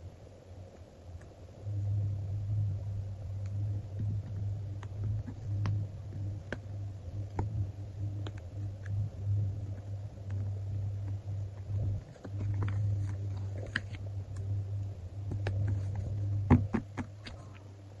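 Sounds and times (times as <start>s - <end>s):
steady low hum: 0.0s - 18.0s
paper crinkling and clicking: 9.7s - 14.5s.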